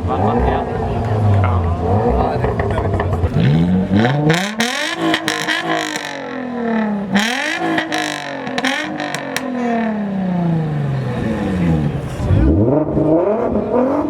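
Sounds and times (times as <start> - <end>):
car engine revving: 0.0 - 14.0
exhaust pops and crackles: 1.0 - 6.4, 7.2 - 9.5.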